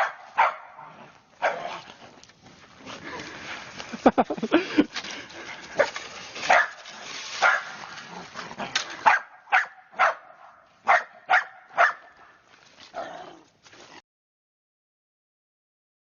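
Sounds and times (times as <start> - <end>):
dog barking: 0.0 - 1.8, 6.5 - 6.8, 7.4 - 7.8, 9.0 - 12.3
background hiss: 0.8 - 9.0.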